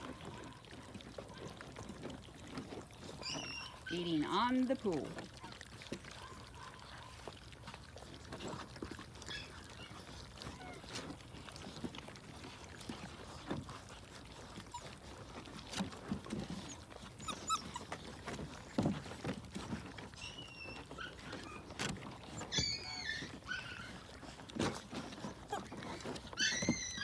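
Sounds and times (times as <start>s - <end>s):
puppies chewing and lapping: 0.0s - 27.0s
puppy squeaks: 3.1s - 4.2s, 9.2s - 11.0s, 14.6s - 15.0s, 16.4s - 18.1s, 20.1s - 24.4s, 25.0s - 27.0s.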